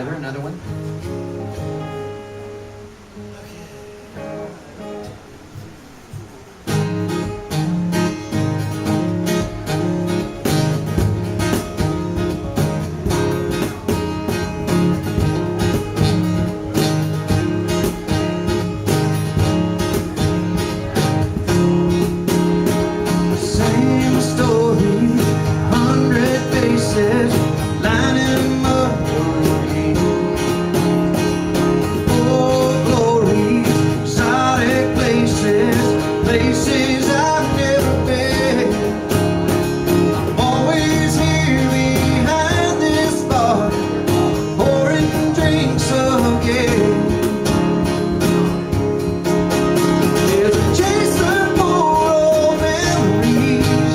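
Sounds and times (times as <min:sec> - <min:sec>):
acoustic guitar strumming: 0:00.0 - 0:53.9
cajon beat: 0:00.0 - 0:53.9
person singing: 0:23.3 - 0:30.8, 0:31.8 - 0:39.2, 0:40.2 - 0:47.4, 0:49.9 - 0:53.9.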